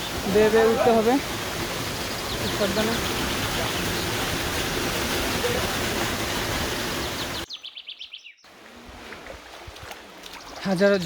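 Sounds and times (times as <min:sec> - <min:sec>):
waterfall rushing: 0:00.0 - 0:07.5
bird chirping: 0:01.8 - 0:04.2, 0:07.0 - 0:08.5.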